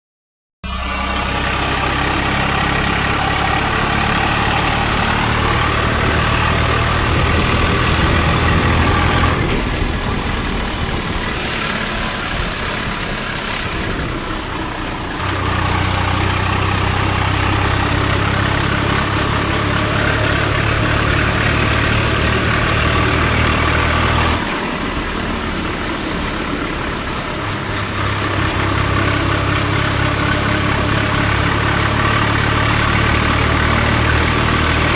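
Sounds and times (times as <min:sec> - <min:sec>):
tractor diesel engine running: 0:00.6 - 0:34.9.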